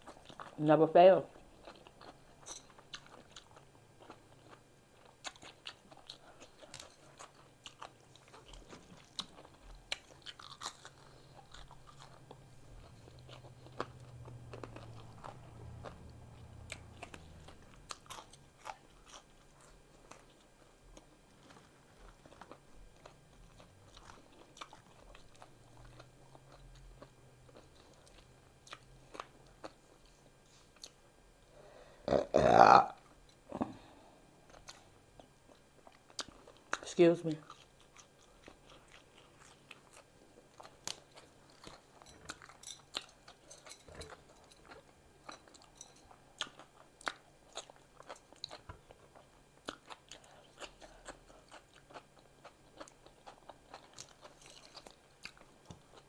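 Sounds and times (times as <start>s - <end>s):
chewing and crunching: 0.0s - 0.6s, 1.2s - 31.5s, 33.0s - 56.0s.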